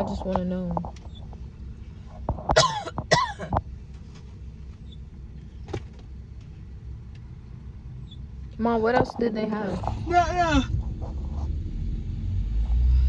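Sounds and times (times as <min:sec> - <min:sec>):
car idling: 0:00.0 - 0:13.0
person coughing: 0:02.5 - 0:03.6.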